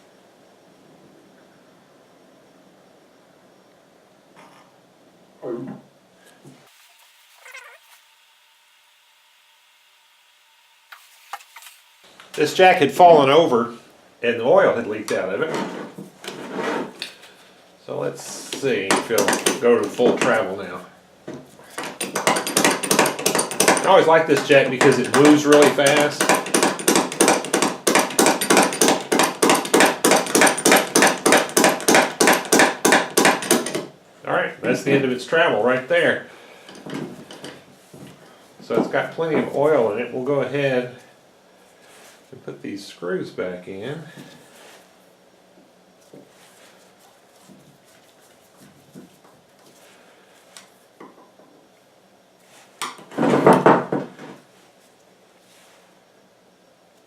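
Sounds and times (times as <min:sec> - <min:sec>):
hydraulic jack pumping clacks: 0:21.8 - 0:33.9.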